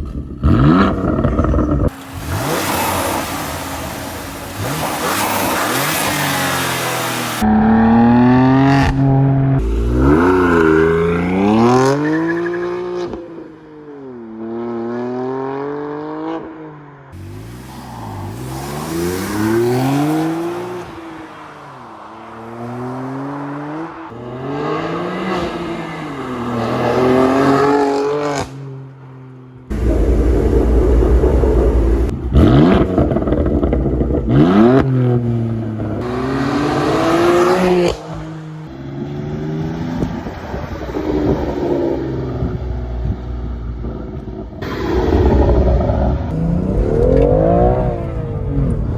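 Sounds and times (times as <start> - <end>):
car exhaust revving: 0.0 - 8.2, 8.8 - 12.6, 29.7 - 38.3, 39.0 - 48.9.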